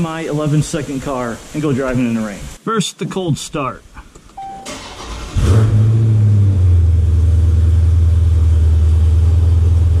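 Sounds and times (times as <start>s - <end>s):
engine starter cranking: 4.6s - 5.9s
car engine high idle: 6.7s - 10.0s.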